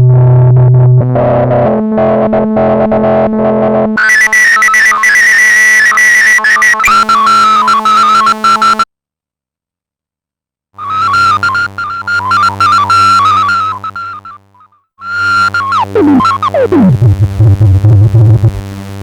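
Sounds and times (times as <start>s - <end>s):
high synthesizer tone: 10.8s - 14.4s, 15.1s - 18.6s
analog synthesizer held notes: 10.8s - 14.5s, 15.1s - 19.0s.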